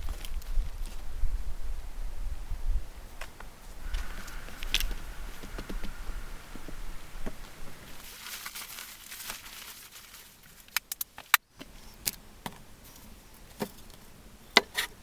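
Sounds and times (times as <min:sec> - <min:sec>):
soft rustling and crinkling: 0:00.0 - 0:01.4, 0:03.1 - 0:14.1
sharp clicks and snaps: 0:10.7 - 0:11.4.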